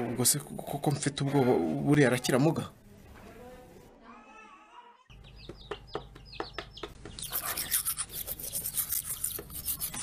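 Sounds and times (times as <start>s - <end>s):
bird chirping: 5.1s - 9.4s
scratchy rubbing noise: 7.2s - 10.0s.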